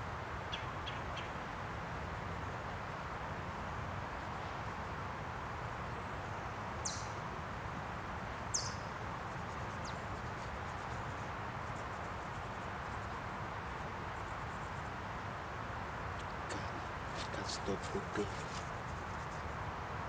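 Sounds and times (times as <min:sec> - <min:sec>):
outdoor background noise: 0:00.0 - 0:20.0
high bird chirps: 0:06.8 - 0:07.2, 0:08.5 - 0:08.8.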